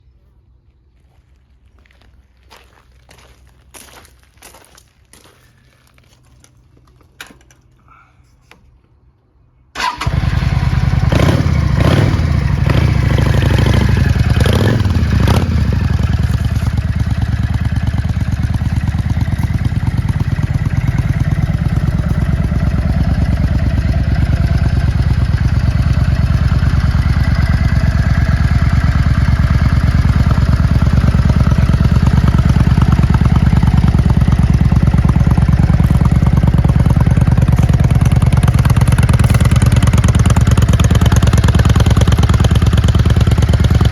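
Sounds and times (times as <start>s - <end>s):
motorcycle engine revving and idling: 9.8s - 43.9s.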